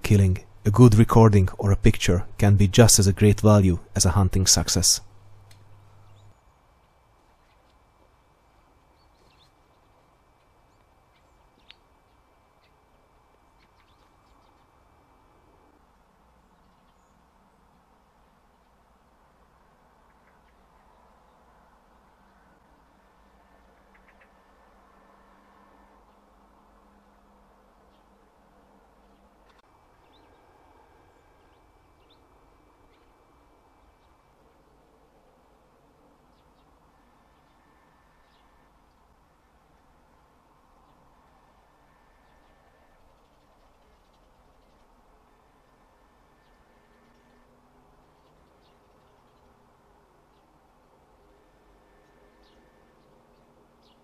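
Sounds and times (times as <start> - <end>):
small birds chirping: 0.2 - 7.8, 8.8 - 15.0, 16.4 - 18.9, 20.0 - 24.7, 27.8 - 34.8, 36.2 - 39.2, 40.8 - 54.0.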